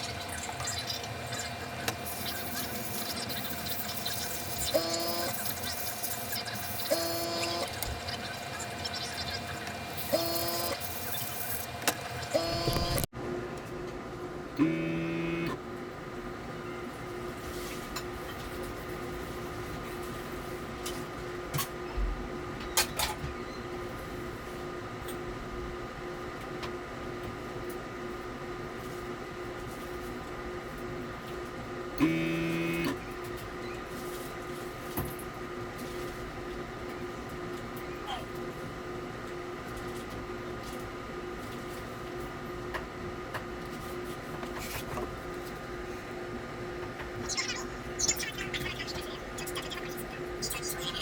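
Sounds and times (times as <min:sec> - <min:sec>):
small motor humming: 0:00.0 - 0:13.1
airbrush compressor humming: 0:09.0 - 0:13.1.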